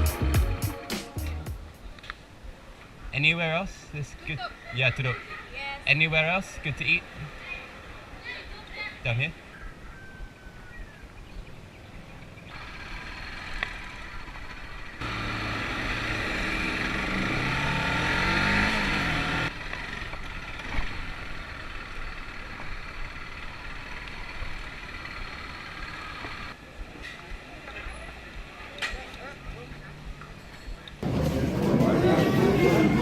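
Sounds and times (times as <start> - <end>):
road noise: 0.0 - 33.0
vehicle engine: 12.4 - 33.0.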